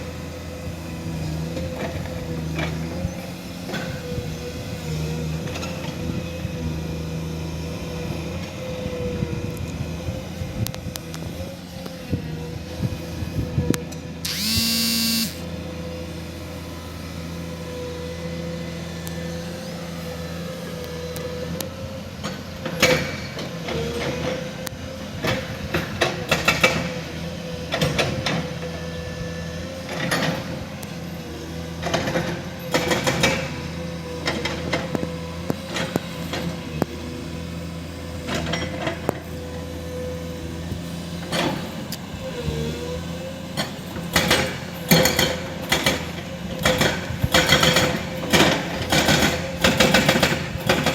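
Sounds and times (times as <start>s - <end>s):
excavator diesel engine running: 0.0s - 50.9s
constant whine: 14.2s - 15.5s
high-pitched squeal: 14.2s - 15.5s.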